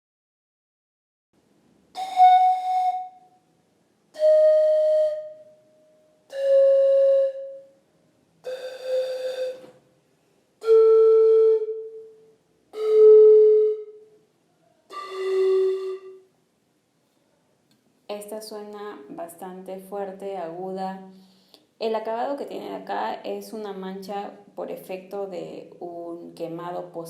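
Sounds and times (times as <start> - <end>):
breathy panpipe notes: 2.0 - 3.4, 4.2 - 7.8, 8.4 - 9.7, 10.6 - 14.2, 14.9 - 16.3.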